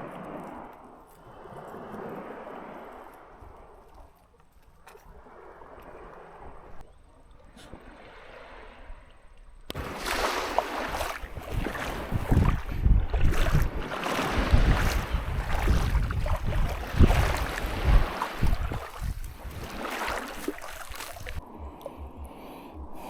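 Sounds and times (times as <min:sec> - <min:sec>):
water splashing and sloshing: 0:00.0 - 0:23.0
wind buffeting microphone: 0:09.7 - 0:23.0.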